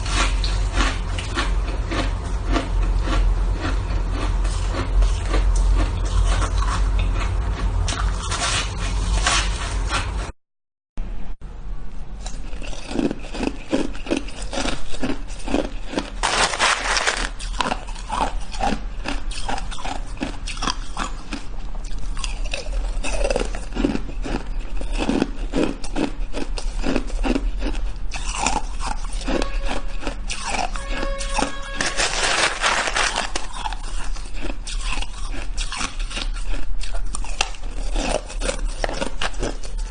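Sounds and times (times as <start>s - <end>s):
shaved ice crunching: 15.5s - 18.0s, 30.3s - 36.1s.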